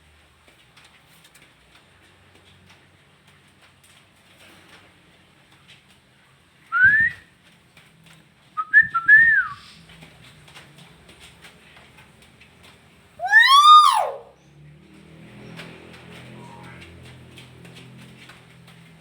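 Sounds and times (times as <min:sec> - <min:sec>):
myna whistled calls: 0:13.2 - 0:14.3.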